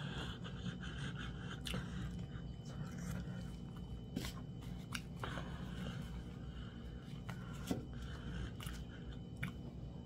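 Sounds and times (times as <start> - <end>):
mouth eating noises: 1.2 - 3.3
sharp mouth clicks and smacks: 8.6 - 9.6.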